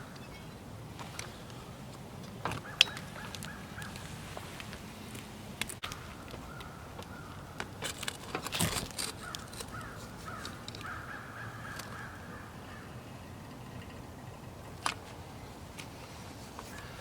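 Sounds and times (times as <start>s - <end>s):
bird calling: 0.0s - 8.4s, 9.0s - 15.6s, 16.6s - 17.0s.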